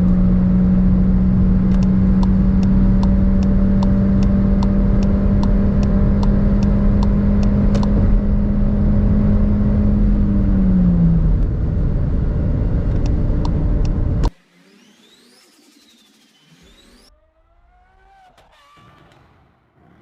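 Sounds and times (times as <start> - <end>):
road and wind noise: 0.0 - 14.4
car engine droning: 0.0 - 20.0.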